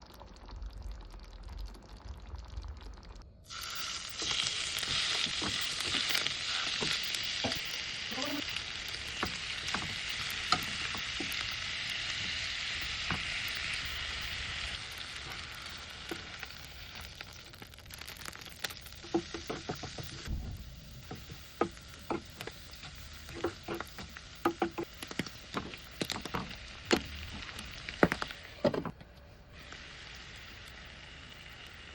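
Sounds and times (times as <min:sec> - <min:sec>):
food sizzling in a frying pan: 0:00.0 - 0:28.7, 0:29.5 - 0:31.9
utensil clicking against pan: 0:08.5 - 0:11.6, 0:18.8 - 0:20.1, 0:21.0 - 0:27.5.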